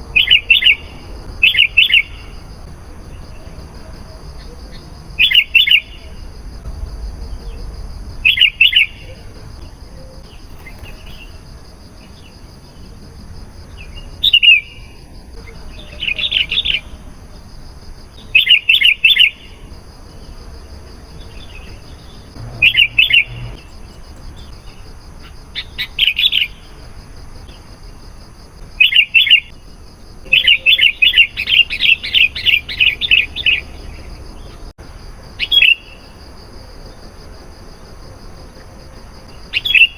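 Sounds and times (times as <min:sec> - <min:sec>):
bulbul chirping: 0:21.6 - 0:24.8.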